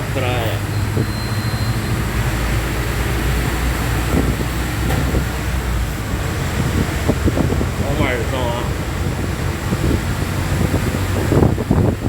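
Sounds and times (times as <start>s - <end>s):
vehicle driving on wet road: 0.0s - 12.0s.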